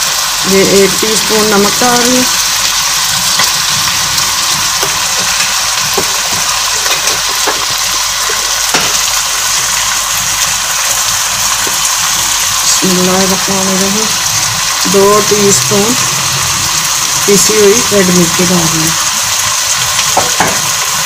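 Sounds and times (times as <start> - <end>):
chicken sizzling in hot oil: 0.0 - 21.0
wooden spoon stirring: 3.1 - 9.2.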